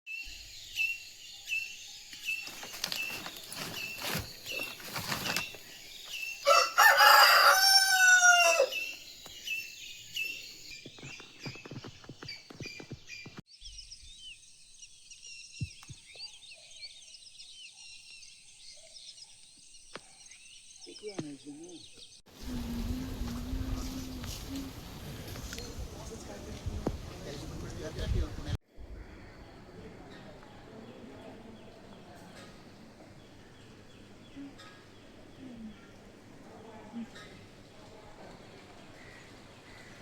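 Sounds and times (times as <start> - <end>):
small birds chirping: 0.1 - 40.0
many birds chirping: 0.2 - 40.0
rooster crowing: 6.4 - 9.0.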